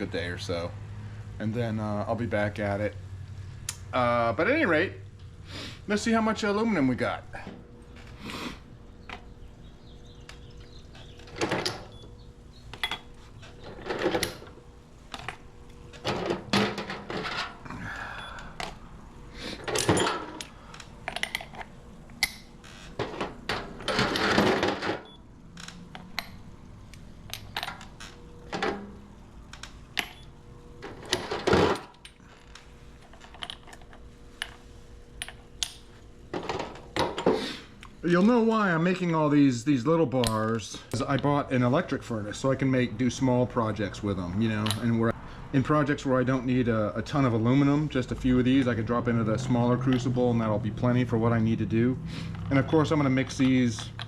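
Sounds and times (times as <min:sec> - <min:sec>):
metal bars clinking: 0:19.6 - 0:25.1.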